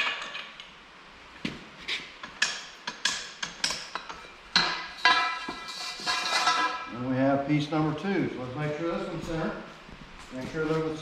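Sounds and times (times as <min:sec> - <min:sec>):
metal clanking and ringing: 0:04.0 - 0:06.9.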